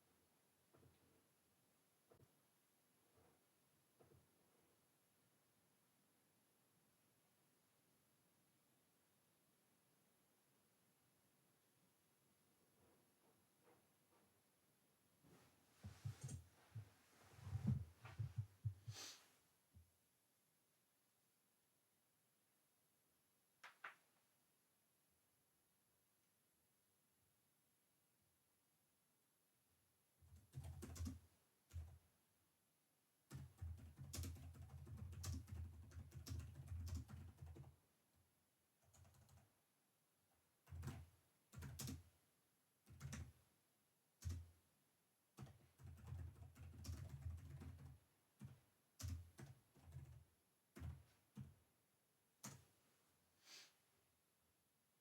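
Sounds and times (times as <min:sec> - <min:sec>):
typing on computer keyboard: 0:30.3 - 0:32.0, 0:33.3 - 0:37.8, 0:38.8 - 0:39.5, 0:40.6 - 0:42.1, 0:42.9 - 0:43.4, 0:44.2 - 0:44.5, 0:45.4 - 0:51.6.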